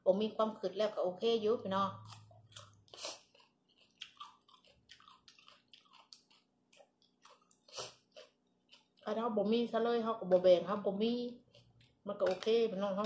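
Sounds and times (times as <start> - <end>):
chewing crisp vegetable crunches: 2.0 - 9.2, 11.3 - 12.5.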